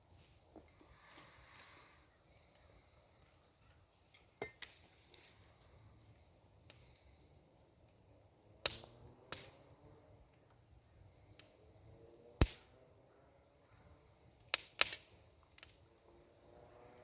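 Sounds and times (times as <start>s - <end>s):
wood fire crackling and popping: 0.0s - 11.6s, 12.4s - 12.8s, 13.5s - 17.0s.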